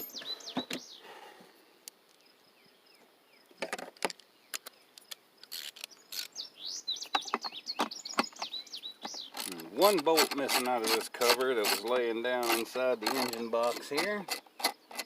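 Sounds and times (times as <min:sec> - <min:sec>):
faint birds chirping: 0:00.0 - 0:15.0
hand tools clicking and knocking: 0:07.1 - 0:15.0.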